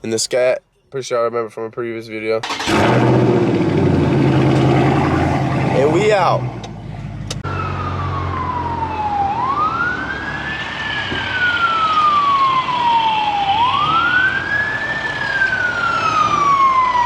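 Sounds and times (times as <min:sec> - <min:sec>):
emergency vehicle siren wailing: 0:07.4 - 0:17.0.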